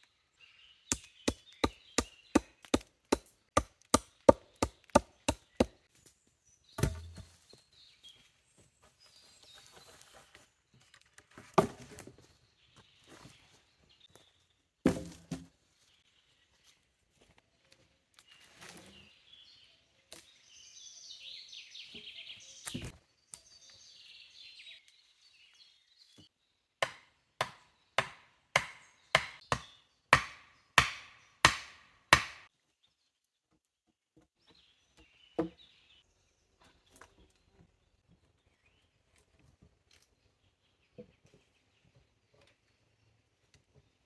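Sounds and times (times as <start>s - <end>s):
wood being chopped: 0.9s - 5.8s, 6.8s - 7.3s, 14.8s - 15.5s, 26.8s - 32.5s.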